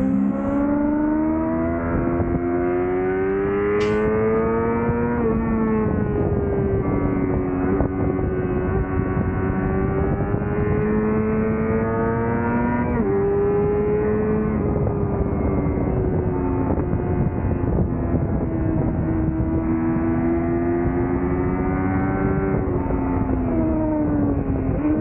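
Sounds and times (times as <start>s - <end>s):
motorcycle engine at high revs: 0.0s - 25.0s.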